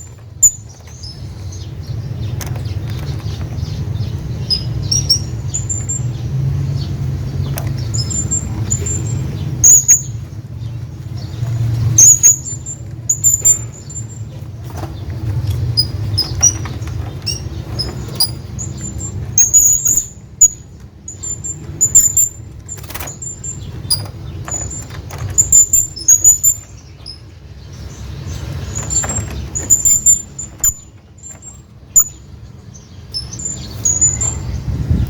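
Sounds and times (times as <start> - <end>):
parrot squeaky calls: 7.9 - 10.2, 18.1 - 22.4, 33.1 - 34.6
sharp clicks: 22.0 - 25.7.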